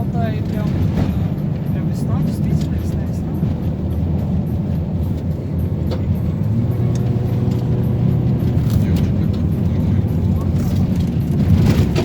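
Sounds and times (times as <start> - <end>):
engine and road noise: 0.0 - 12.0.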